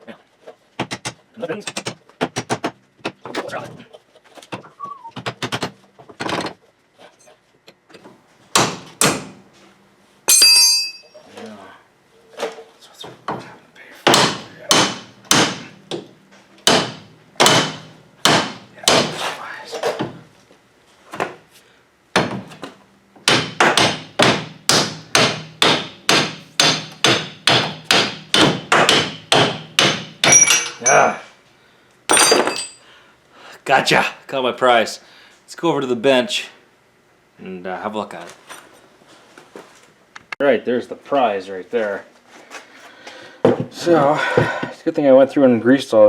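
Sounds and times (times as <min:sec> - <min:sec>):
metal tools clanking on metal: 0:10.3 - 0:11.2, 0:30.2 - 0:31.2, 0:32.1 - 0:32.8.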